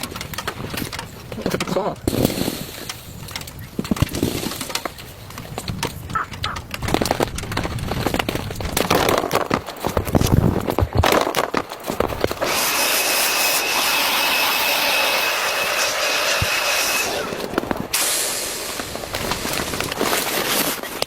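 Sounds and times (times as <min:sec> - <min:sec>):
crackling and clicks: 0:00.0 - 0:21.0
steady hiss with high whistle: 0:12.7 - 0:19.6.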